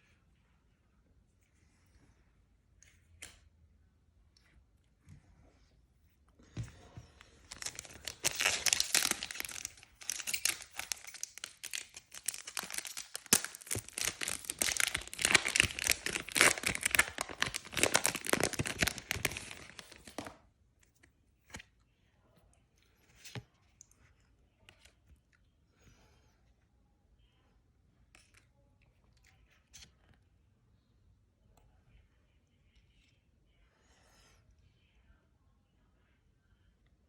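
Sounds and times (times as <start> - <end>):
wrapper tearing and crinkling: 7.5 - 20.4.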